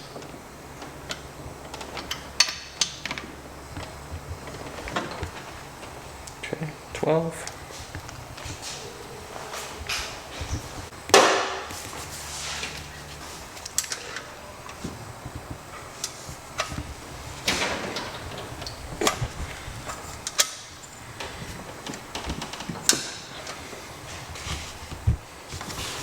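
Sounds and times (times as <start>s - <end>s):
hand tools clicking on metal: 13.6s - 14.8s.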